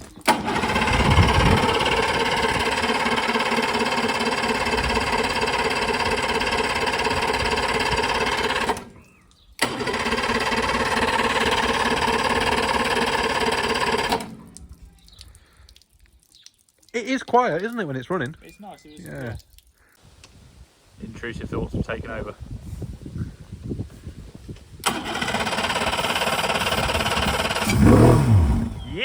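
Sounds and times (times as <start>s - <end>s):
boat engine running: 0.3s - 9.0s, 9.6s - 14.5s, 24.9s - 29.0s.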